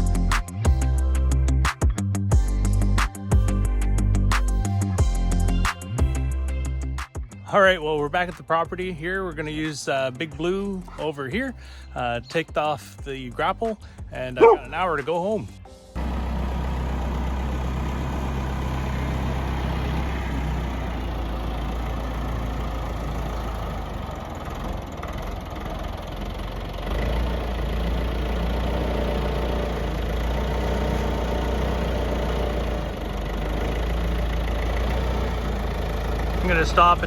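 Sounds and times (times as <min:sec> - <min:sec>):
tractor engine running: 0:16.0 - 0:37.0.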